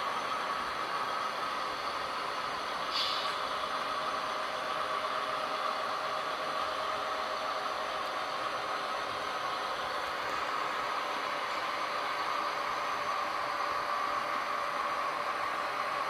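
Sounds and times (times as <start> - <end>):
diesel engine drone: 0.0 - 16.0
short hiss: 2.9 - 3.4.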